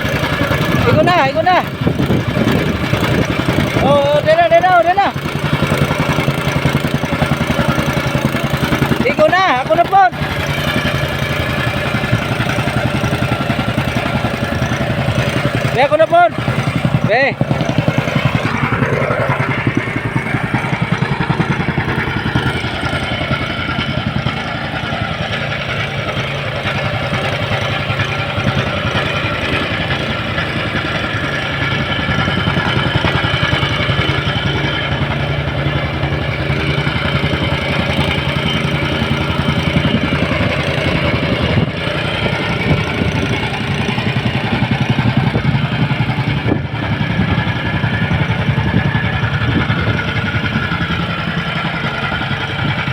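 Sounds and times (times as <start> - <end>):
engine running with low pulsing: 0.0 - 52.9.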